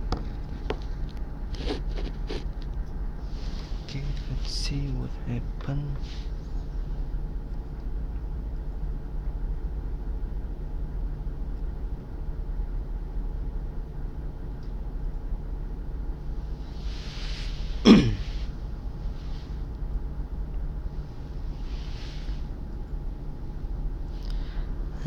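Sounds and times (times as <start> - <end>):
low background hum: 0.0 - 25.0
person clearing throat: 17.8 - 18.4.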